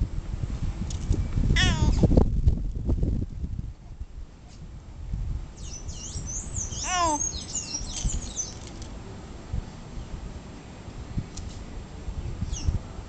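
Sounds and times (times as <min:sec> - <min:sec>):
birds singing: 0:05.6 - 0:08.7.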